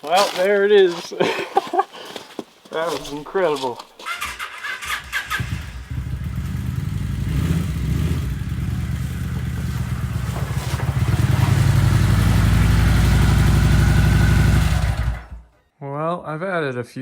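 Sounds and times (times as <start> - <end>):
motorcycle engine running: 4.8 - 15.5.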